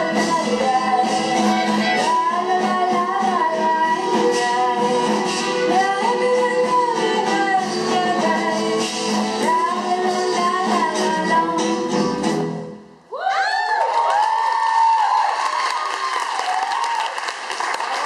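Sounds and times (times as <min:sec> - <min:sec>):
person singing: 0:00.0 - 0:12.4.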